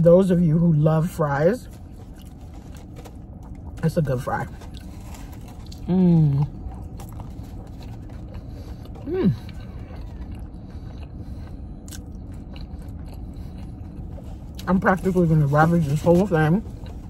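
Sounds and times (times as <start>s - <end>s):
steady low hum: 0.0s - 17.0s
person chewing food: 1.6s - 17.0s
person humming mm: 5.8s - 6.5s, 9.0s - 9.4s.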